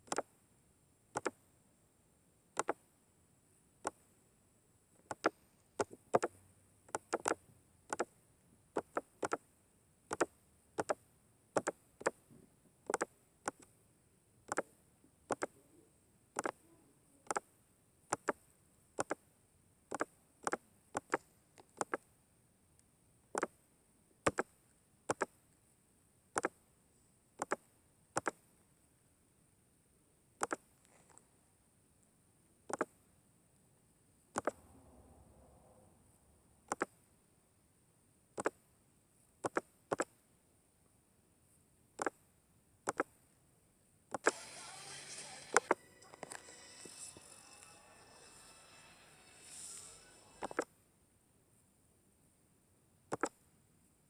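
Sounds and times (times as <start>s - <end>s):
faint high hiss: 44.2s - 50.6s.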